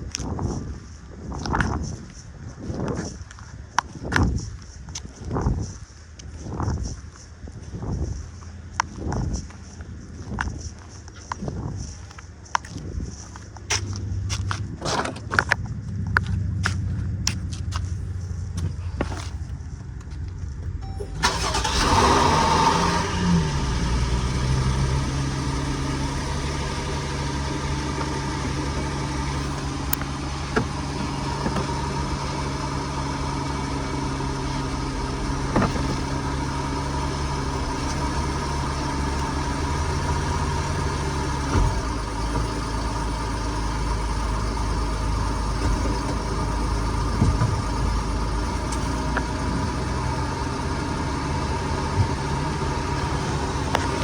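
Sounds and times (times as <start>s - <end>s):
car engine idling: 13.3s - 54.0s.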